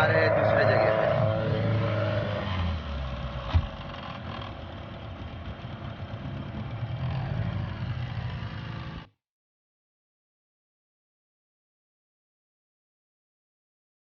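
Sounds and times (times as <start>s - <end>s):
vehicle engine rumbling: 0.0s - 9.1s.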